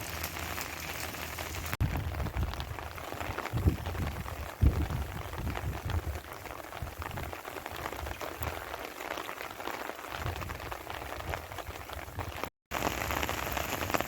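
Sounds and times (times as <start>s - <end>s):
low rumbles: 0.0s - 8.0s
steady rain patter: 0.0s - 14.0s.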